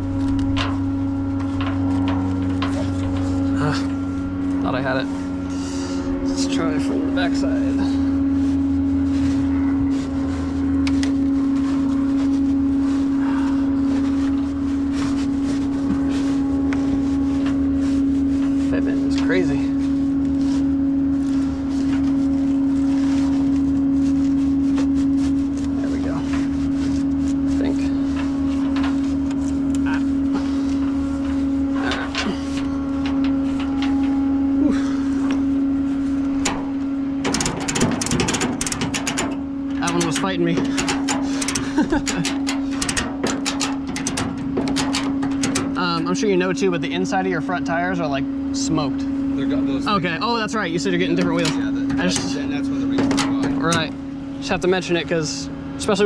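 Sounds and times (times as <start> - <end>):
metal tie-down gear clanking: 0.0 - 4.0, 31.2 - 34.3, 36.4 - 46.1, 51.3 - 54.0
truck engine humming: 0.0 - 56.0
ratchet clicks: 37.2 - 45.8.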